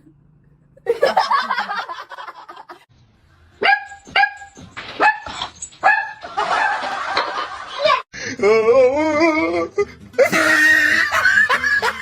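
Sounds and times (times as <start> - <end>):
dog barking: 3.6 - 6.8.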